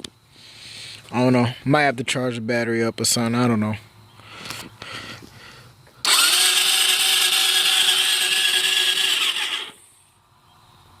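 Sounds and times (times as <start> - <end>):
electric starter whirring: 6.0 - 9.9.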